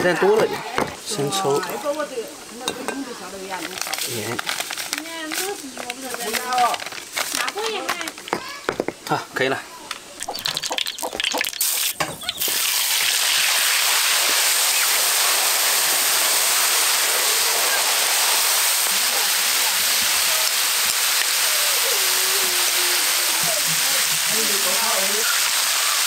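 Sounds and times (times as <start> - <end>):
food frying in hot oil: 0.0 - 8.6, 10.2 - 26.0.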